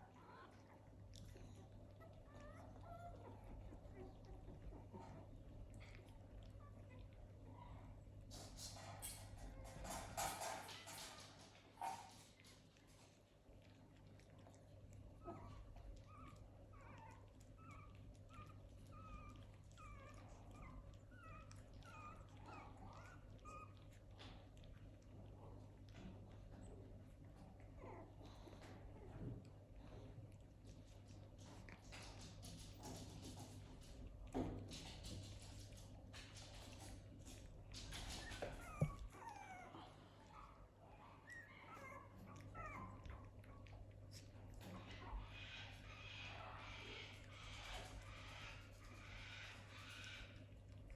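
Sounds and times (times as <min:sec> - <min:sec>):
puppies whimpering: 0:00.0 - 0:08.0, 0:14.3 - 0:26.7, 0:37.8 - 0:50.9.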